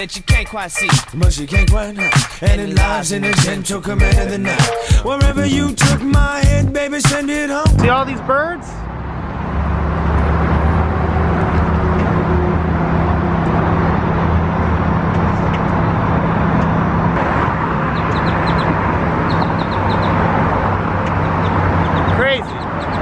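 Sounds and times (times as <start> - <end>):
street traffic: 0.0 - 23.0
low engine hum: 7.7 - 23.0
flock of birds chirping: 17.9 - 20.3, 21.0 - 23.0.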